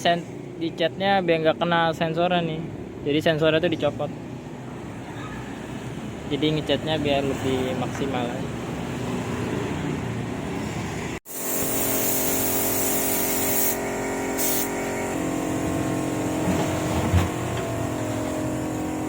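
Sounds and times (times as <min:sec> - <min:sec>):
compressed air hissing: 0:11.3 - 0:15.2.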